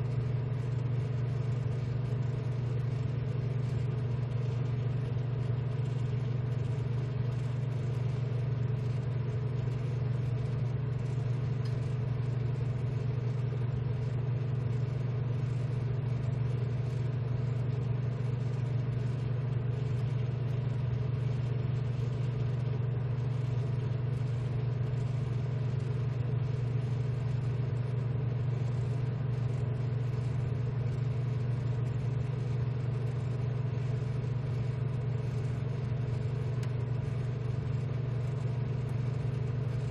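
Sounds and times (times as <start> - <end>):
blower fans humming: 0.0 - 39.9.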